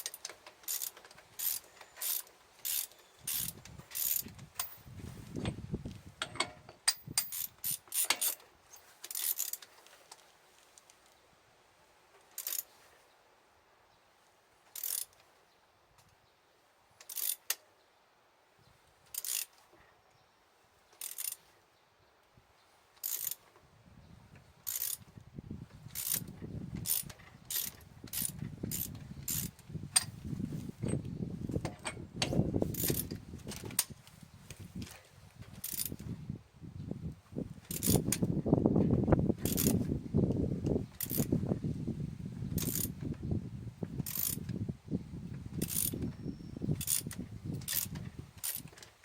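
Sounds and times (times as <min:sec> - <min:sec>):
hand tool ratcheting clicks: 0:00.0 - 0:04.9, 0:06.2 - 0:09.7, 0:12.4 - 0:12.7, 0:14.8 - 0:15.2, 0:17.0 - 0:17.6, 0:19.1 - 0:19.5, 0:21.0 - 0:21.4, 0:23.0 - 0:23.4, 0:24.6 - 0:25.0, 0:25.9 - 0:30.2, 0:31.6 - 0:34.0, 0:35.6 - 0:36.1, 0:37.7 - 0:38.3, 0:39.4 - 0:39.9, 0:41.0 - 0:41.3, 0:42.6 - 0:43.0, 0:44.0 - 0:44.5, 0:45.6 - 0:46.2, 0:46.8 - 0:48.9.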